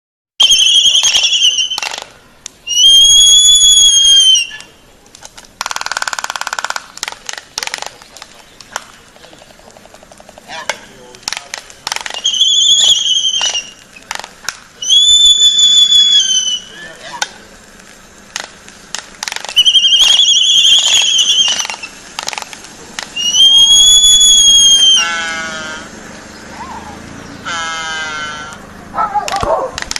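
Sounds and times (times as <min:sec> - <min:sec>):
birds whistling calls: 0:00.4 - 0:05.0, 0:11.8 - 0:18.6, 0:19.3 - 0:29.7.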